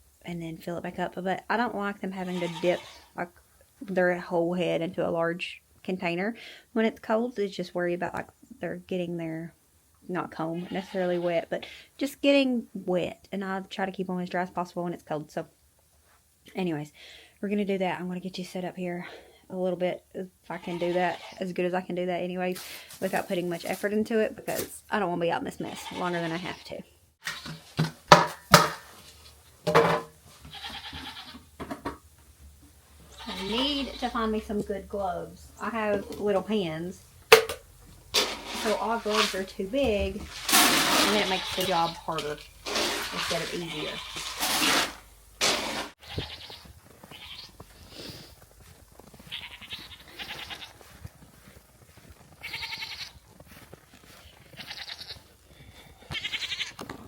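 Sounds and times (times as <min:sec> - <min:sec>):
goats bleating: 0:02.1 - 0:03.2, 0:10.4 - 0:11.4, 0:20.5 - 0:21.4, 0:25.6 - 0:27.5, 0:30.5 - 0:31.4, 0:33.1 - 0:34.4, 0:40.3 - 0:44.5, 0:46.0 - 0:48.2, 0:49.2 - 0:51.0, 0:52.4 - 0:53.2, 0:54.4 - 0:55.3, 0:56.0 - 0:56.8
sharp knock: 0:28.1 - 0:28.9.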